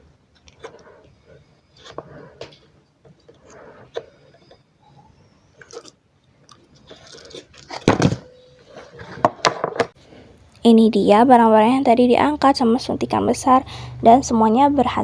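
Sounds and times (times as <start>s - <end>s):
objects clattering: 6.8s - 10.0s.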